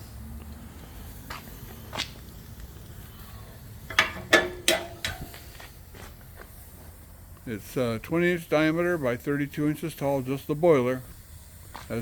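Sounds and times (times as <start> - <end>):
sharp clicks and knocks: 3.9 - 5.5.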